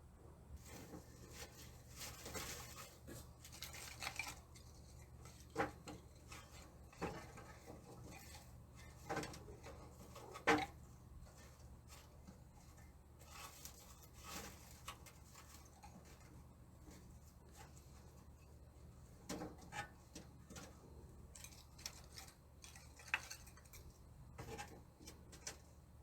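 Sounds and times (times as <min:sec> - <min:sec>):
faint scraping and rustling: 0:00.5 - 0:26.0.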